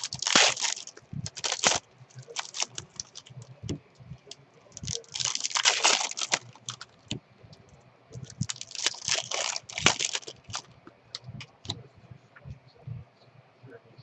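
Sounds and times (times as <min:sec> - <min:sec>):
pack wrapper crinkling: 0:00.0 - 0:03.8, 0:04.7 - 0:07.2, 0:08.2 - 0:11.8.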